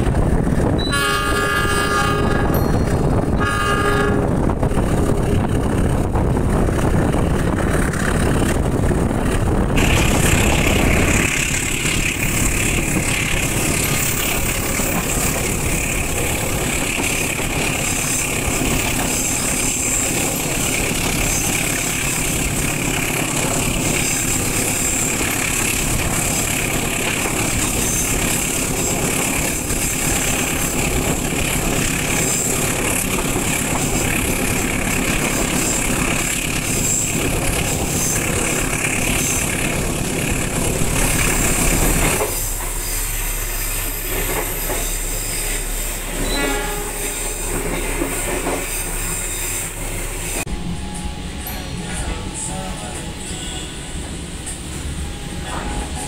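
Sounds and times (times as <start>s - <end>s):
passenger train interior noise: 0.0s - 56.0s.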